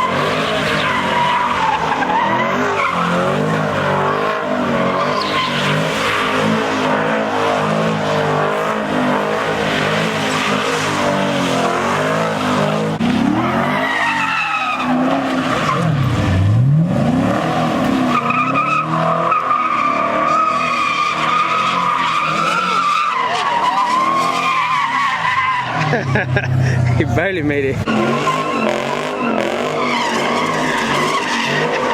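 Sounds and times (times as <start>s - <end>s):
car engine revving hard: 0.0s - 24.7s, 27.7s - 31.9s
tyres squealing and skidding: 0.0s - 31.9s.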